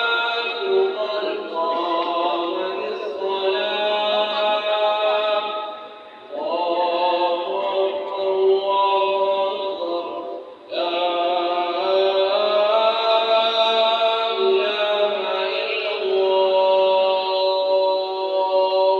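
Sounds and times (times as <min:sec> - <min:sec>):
person chanting: 0:00.0 - 0:18.9.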